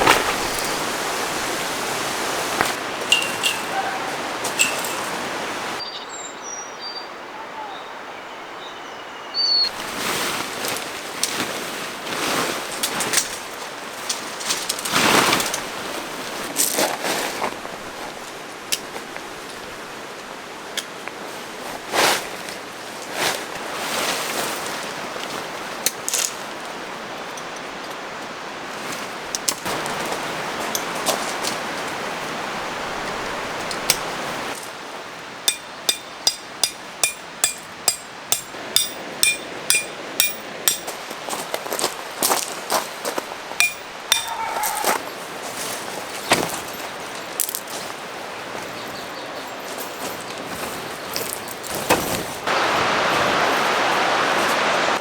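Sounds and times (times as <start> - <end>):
mountain stream rushing: 0.0 - 5.8, 9.5 - 55.0
rustles: 0.0 - 5.8, 9.7 - 55.0
birds chirping: 0.0 - 9.8, 32.5 - 40.9, 43.4 - 47.3, 48.2 - 51.8.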